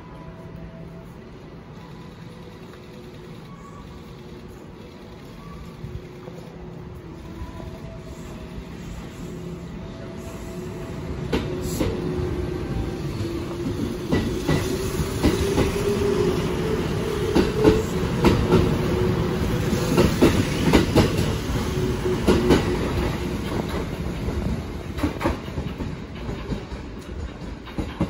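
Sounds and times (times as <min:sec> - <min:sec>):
train wheels clacking over rail joints: 0:22.2 - 0:28.0.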